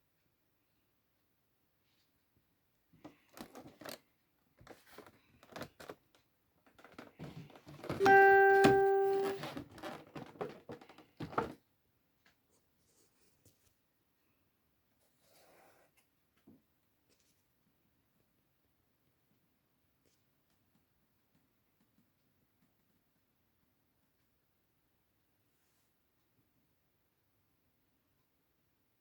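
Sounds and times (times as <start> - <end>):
clear pitched tone: 8.0 - 9.4.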